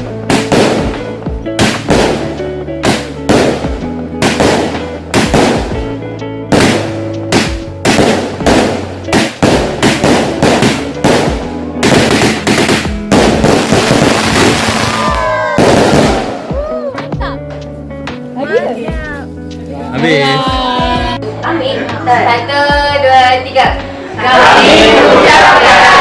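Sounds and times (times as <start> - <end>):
fireworks bangs: 0.0 - 5.9, 6.5 - 16.7
background music with held notes: 0.0 - 26.0.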